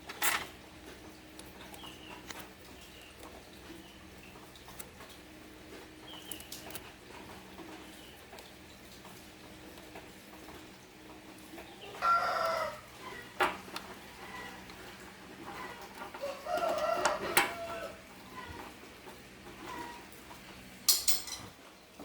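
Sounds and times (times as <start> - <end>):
drawn-out animal calls: 11.5 - 18.8.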